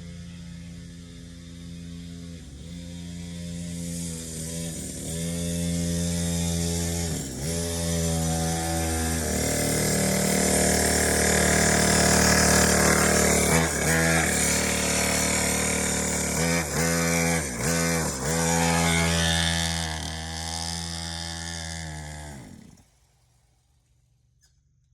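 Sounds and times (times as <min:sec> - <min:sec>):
dirt bike engine revving: 0:00.0 - 0:23.1.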